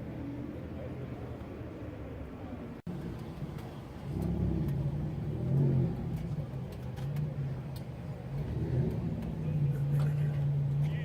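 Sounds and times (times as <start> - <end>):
sports car engine revving: 2.9 - 11.0.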